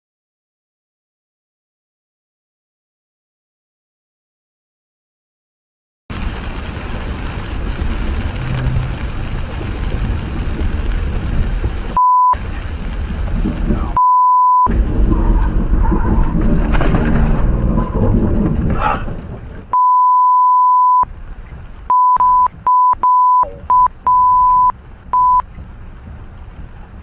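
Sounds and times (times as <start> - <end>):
vehicle noise: 6.1 - 27.0
censor bleeps: 12.0 - 12.4, 14.0 - 14.7, 19.7 - 21.1, 21.9 - 25.4.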